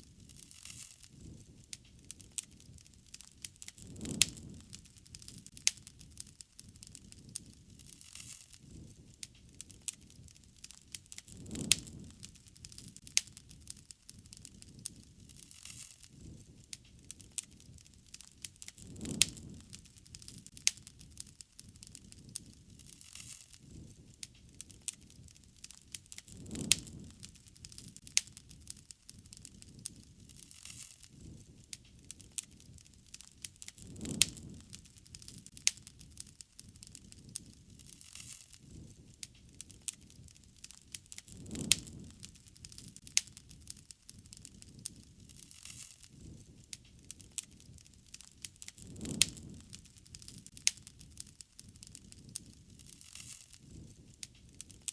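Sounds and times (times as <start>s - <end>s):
low rumble of flames: 0.0s - 54.9s
wood fire crackling: 0.0s - 54.9s.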